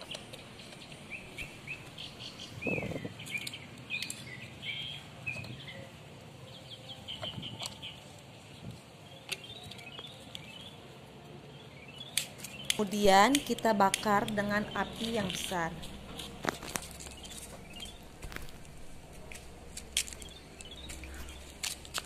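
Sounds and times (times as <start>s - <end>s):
small birds chirping: 0.0s - 8.0s, 9.0s - 10.8s, 11.5s - 22.0s.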